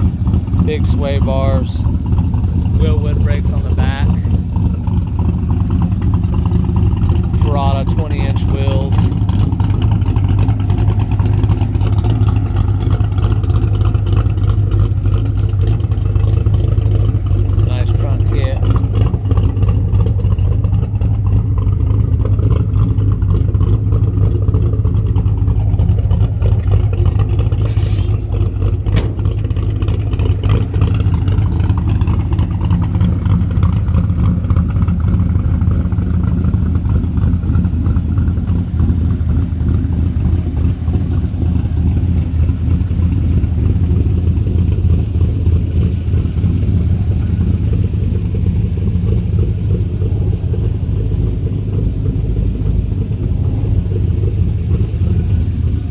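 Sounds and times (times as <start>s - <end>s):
car engine idling: 0.0s - 55.9s
sharp engine knock: 28.9s - 29.8s.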